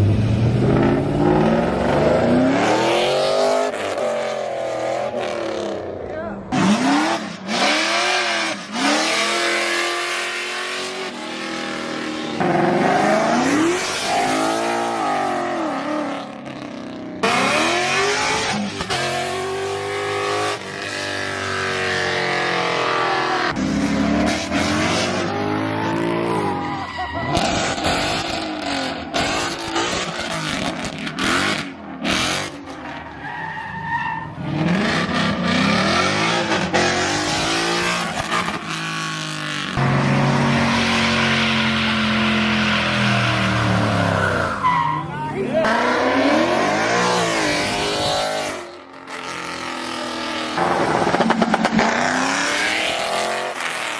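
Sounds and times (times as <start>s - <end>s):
car engines revving: 0.0s - 53.9s
tire squeal and skidding: 24.3s - 39.1s, 40.2s - 48.8s.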